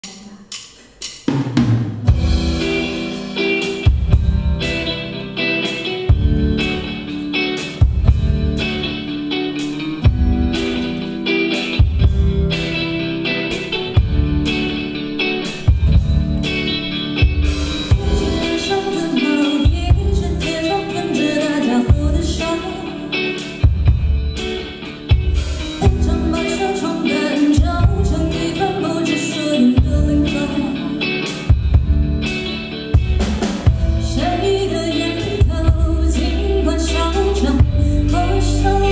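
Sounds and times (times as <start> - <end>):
snare and bass drum beat: 0.0 - 3.2
rock band music: 1.2 - 38.9.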